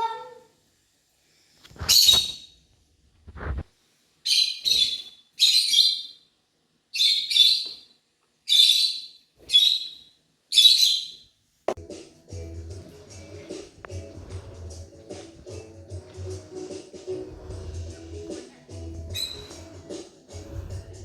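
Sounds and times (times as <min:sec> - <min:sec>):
lovebirds chirping: 0:04.2 - 0:06.3, 0:06.9 - 0:07.9, 0:08.5 - 0:11.3, 0:19.0 - 0:19.8
music: 0:11.8 - 0:21.0.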